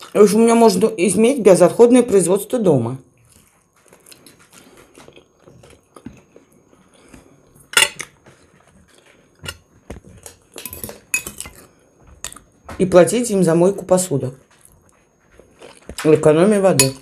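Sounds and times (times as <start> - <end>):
chewing and biting: 3.2 - 7.5, 14.5 - 16.1
fork clinking against plate: 7.8 - 8.1.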